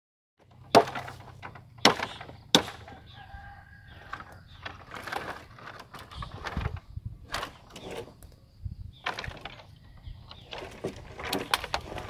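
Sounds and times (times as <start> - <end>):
hand tool chopping ground: 0.5 - 3.0
rooster crowing faintly: 2.9 - 4.5.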